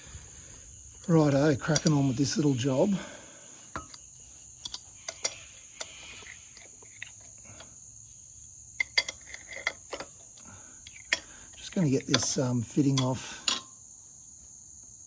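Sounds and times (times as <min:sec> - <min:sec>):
insects chirring: 0:00.0 - 0:15.0
hand tools clinking on metal: 0:01.0 - 0:07.8, 0:08.8 - 0:13.8.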